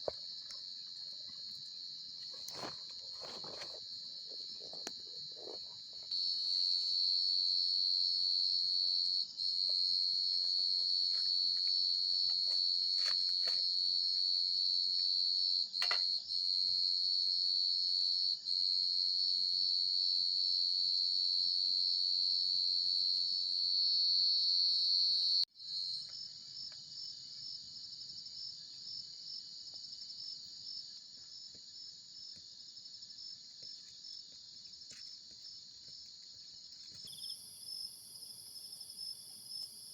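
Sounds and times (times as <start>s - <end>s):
crickets trilling: 0.0s - 18.7s, 23.7s - 39.9s.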